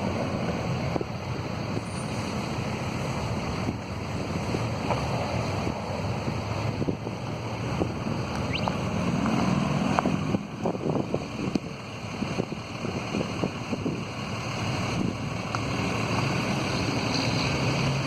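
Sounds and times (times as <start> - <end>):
fire roaring: 0.0 - 18.0
fire crackling and popping: 11.4 - 16.5.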